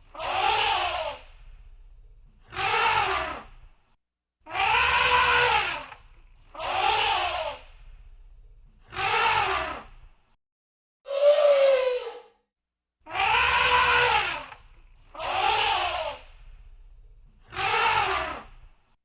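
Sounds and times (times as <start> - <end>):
low rumble: 1.3 - 2.4, 7.7 - 8.8
elephant trumpeting: 4.5 - 5.9, 13.1 - 14.5.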